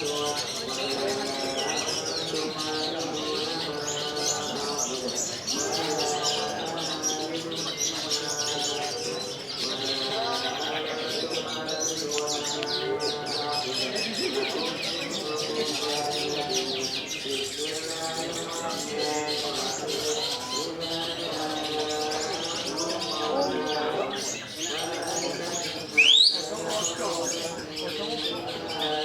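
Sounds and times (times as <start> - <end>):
birds chirping and trilling: 0.0 - 29.0
lower bird warbling: 25.8 - 27.3.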